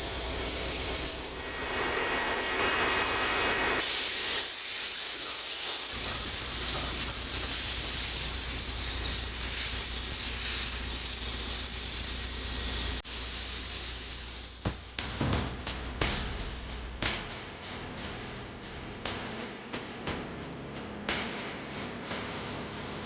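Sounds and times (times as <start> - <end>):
compressed air hissing: 0.0 - 1.5, 3.8 - 14.6.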